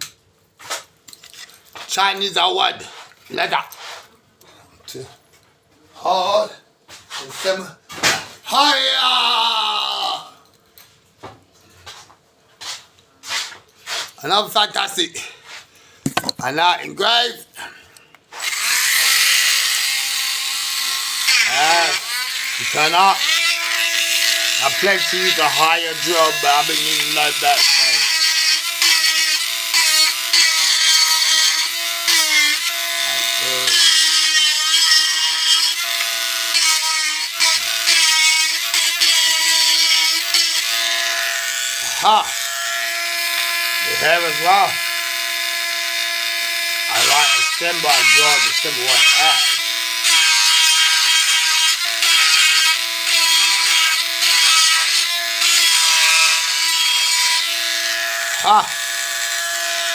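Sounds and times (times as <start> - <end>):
engraving tool motor whine: 18.4 - 59.9
bit grinding into wood: 20.9 - 42.7, 46.9 - 59.9.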